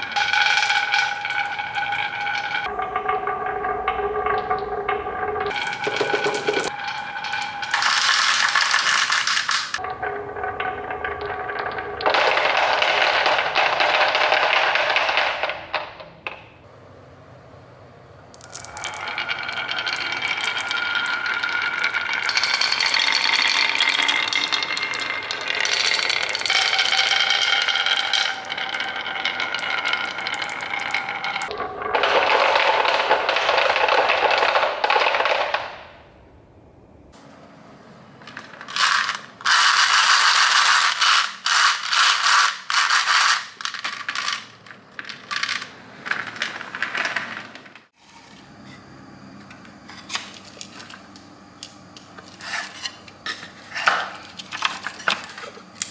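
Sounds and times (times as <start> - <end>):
marbles rolling and clattering: 0.0 - 16.4, 18.3 - 36.0, 38.2 - 48.0, 52.0 - 55.9
sharp marble clacks: 5.5 - 9.8, 38.4 - 46.8.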